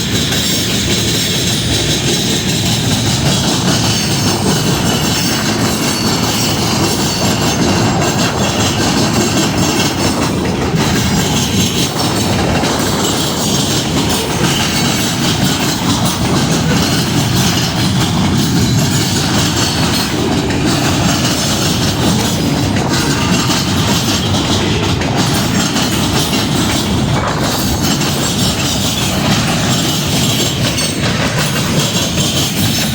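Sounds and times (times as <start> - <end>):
train rumbling on rails: 0.0 - 32.9.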